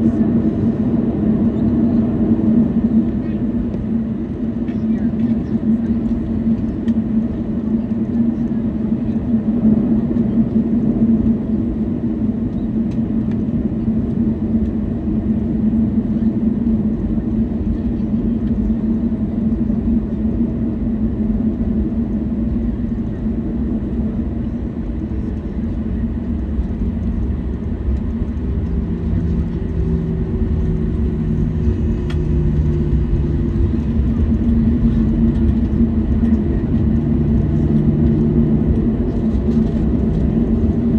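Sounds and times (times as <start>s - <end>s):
jet engines idling hum: 0.0s - 40.9s
low droning tone: 0.0s - 40.9s
aircraft wheels rolling: 23.9s - 40.9s.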